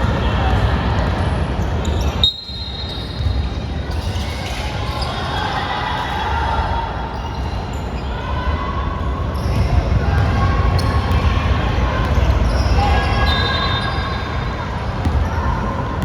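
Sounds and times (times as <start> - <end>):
echoing hall noise: 4.6 - 16.0
basketball bouncing on court: 9.6 - 11.4, 15.0 - 16.0.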